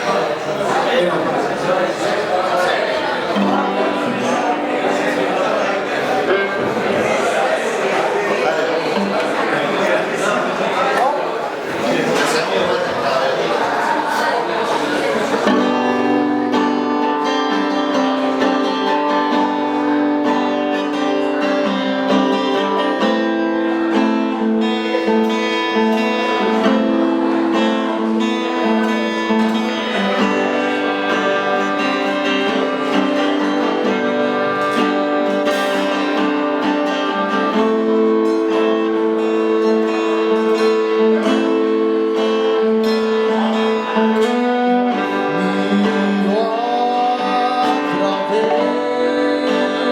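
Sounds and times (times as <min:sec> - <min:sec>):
acoustic guitars strumming: 0:00.0 - 0:49.9
long held notes: 0:15.5 - 0:49.9.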